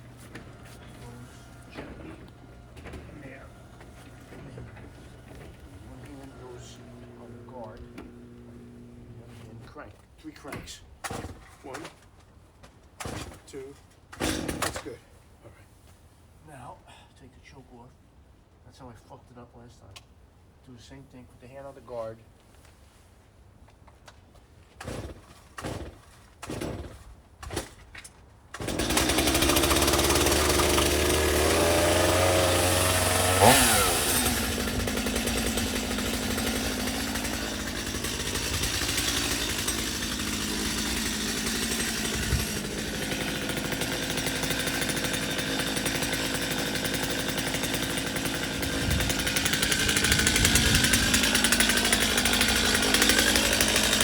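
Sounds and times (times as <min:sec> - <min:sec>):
chainsaw engine running: 0:00.0 - 0:09.8, 0:28.6 - 0:54.0
starter cord pulls: 0:00.1 - 0:09.7.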